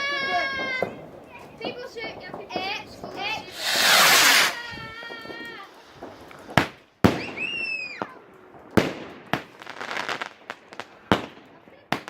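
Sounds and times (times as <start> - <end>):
fireworks bangs and crackles: 0.0 - 12.0
firework whistle: 3.4 - 4.8.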